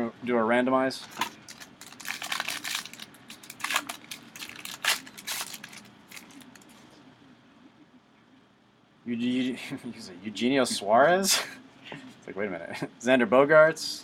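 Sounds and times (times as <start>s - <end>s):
foil wrapper tearing and crinkling: 1.0s - 6.8s.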